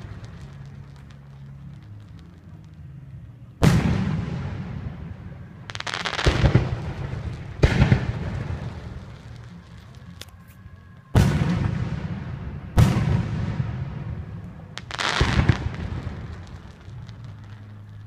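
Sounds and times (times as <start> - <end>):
fireworks booming: 0.0 - 2.8, 3.6 - 10.2, 11.1 - 18.0.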